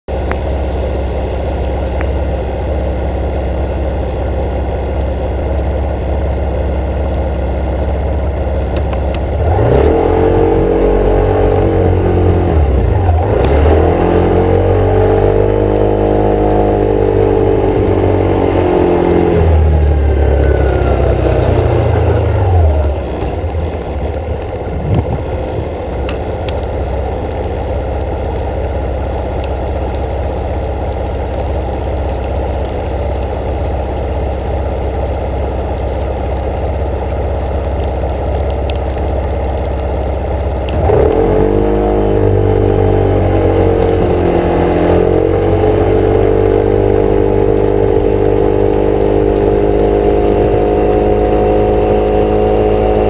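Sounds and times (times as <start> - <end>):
vehicle engine accelerating: 0.1 - 53.0.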